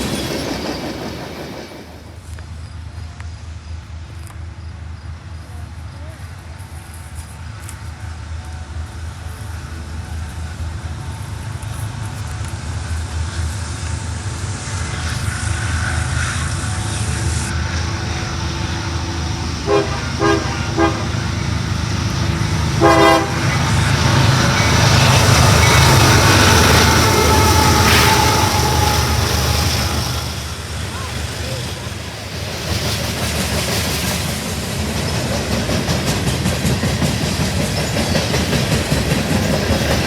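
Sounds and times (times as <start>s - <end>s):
diesel locomotive rumble: 0.0s - 40.0s
locomotive air horn blasts: 19.2s - 21.6s, 22.6s - 24.1s, 25.5s - 30.5s.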